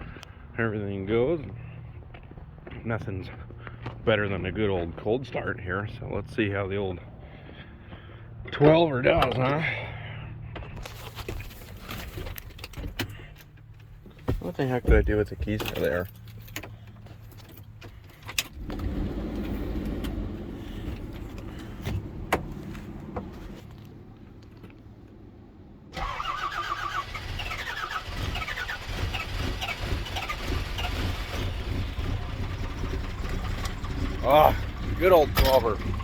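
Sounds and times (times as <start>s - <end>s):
diesel engine cranking and running: 7.2s - 36.0s.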